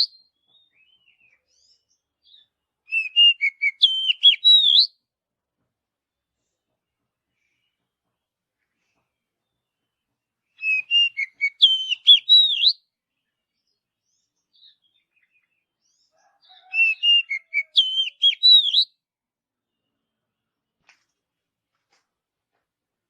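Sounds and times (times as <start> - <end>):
bird singing whistled notes: 0.0 - 5.0, 10.5 - 12.8, 16.5 - 19.0.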